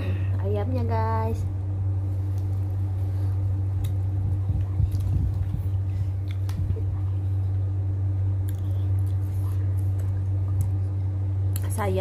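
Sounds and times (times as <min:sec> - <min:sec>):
steady low hum: 0:00.0 - 0:12.0
wet chewing: 0:03.8 - 0:05.6, 0:08.4 - 0:10.8.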